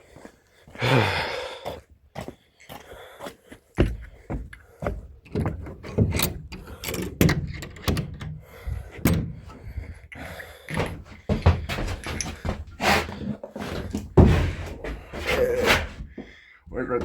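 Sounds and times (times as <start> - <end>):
tools and metal parts clunking: 4.9 - 9.8, 10.7 - 16.0.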